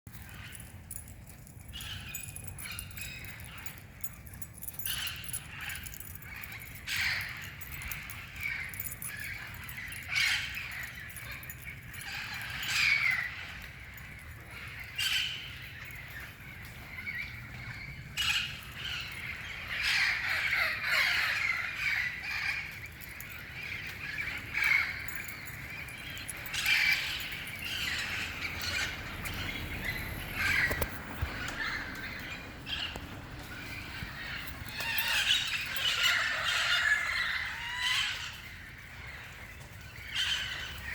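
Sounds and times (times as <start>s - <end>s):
parrots squawking: 26.4s - 38.4s.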